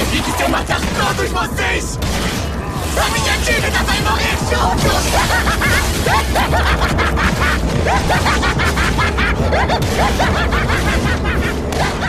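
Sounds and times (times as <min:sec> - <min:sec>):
steady low rumble: 0:00.0 - 0:12.0
man laughing manically: 0:03.6 - 0:12.0.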